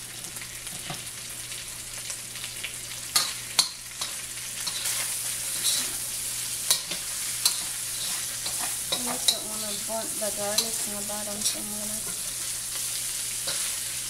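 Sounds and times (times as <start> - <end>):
food sizzling in hot oil: 0.0 - 14.0
metal spatula scraping a wok: 4.0 - 14.0.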